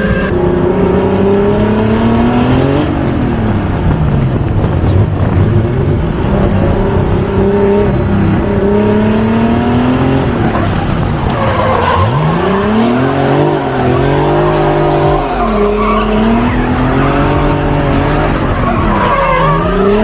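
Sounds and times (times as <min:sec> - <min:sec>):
car engine revving hard: 0:00.0 - 0:03.9, 0:04.7 - 0:20.0
tires screeching: 0:00.0 - 0:20.0.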